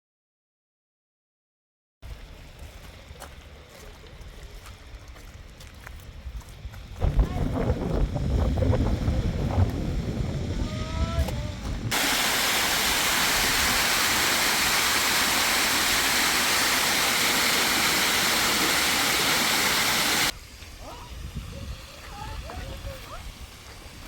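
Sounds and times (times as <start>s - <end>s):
wind noise on microphone: 4.2s - 12.2s, 20.2s - 24.0s
rushing water hiss: 10.0s - 24.0s.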